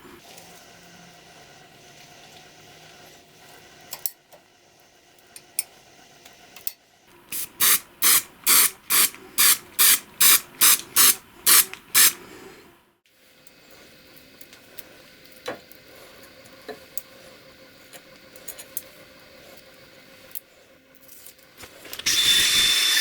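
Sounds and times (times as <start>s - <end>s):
pressurised spray hissing: 7.4s - 12.2s.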